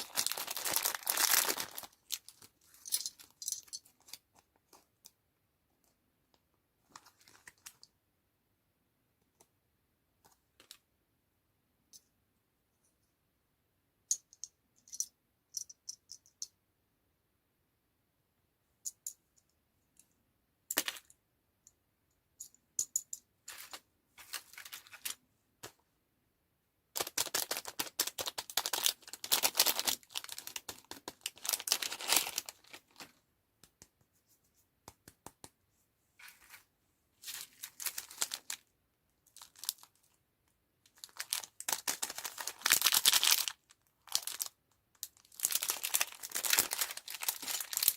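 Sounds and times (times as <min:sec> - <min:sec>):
plastic wrapper crinkling and tearing: 0:00.0 - 0:03.4, 0:27.0 - 0:33.0, 0:37.3 - 0:38.6, 0:39.3 - 0:40.0, 0:40.9 - 0:47.9.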